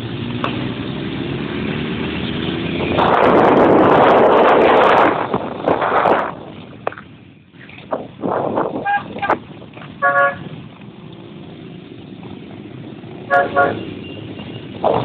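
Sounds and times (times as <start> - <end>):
motorbike engine accelerating: 0.0 - 6.4, 7.8 - 15.0
wind rushing on microphone: 2.4 - 7.1, 7.7 - 10.7.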